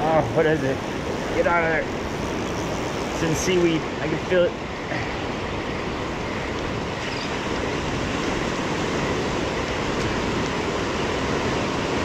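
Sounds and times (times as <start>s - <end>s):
ocean surf washing on beach: 0.0s - 12.0s
wind buffeting microphone: 0.0s - 12.0s.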